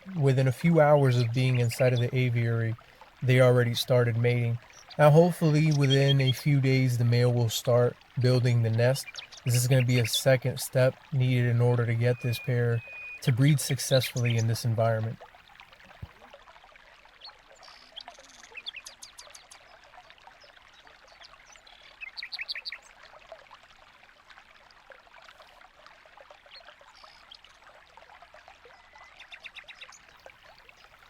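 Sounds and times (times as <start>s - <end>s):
trickle of running water: 0.0s - 31.0s
finches chirping: 3.4s - 15.1s.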